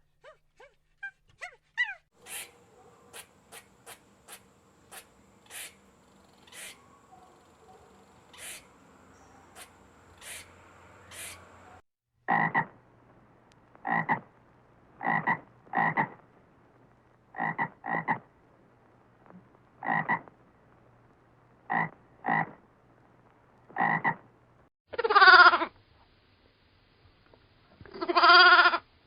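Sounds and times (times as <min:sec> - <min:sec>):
frog croaking: 0:02.2 - 0:12.8, 0:13.8 - 0:14.3, 0:15.0 - 0:16.2, 0:17.3 - 0:18.3, 0:19.8 - 0:20.3, 0:21.7 - 0:22.6, 0:23.8 - 0:24.2.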